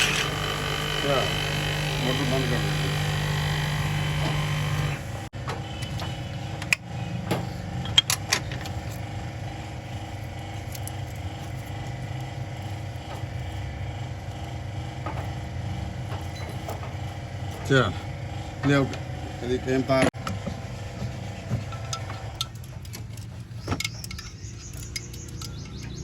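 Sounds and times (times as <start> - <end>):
electric motor humming: 0.0 - 23.4
sharp metallic clicks and knocks: 21.5 - 26.0.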